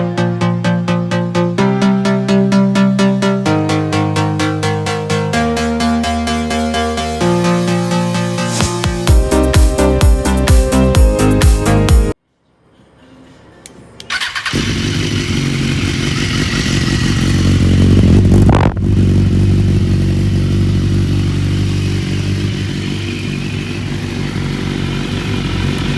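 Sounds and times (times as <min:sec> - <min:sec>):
motorcycle engine running: 0:14.3 - 0:25.9.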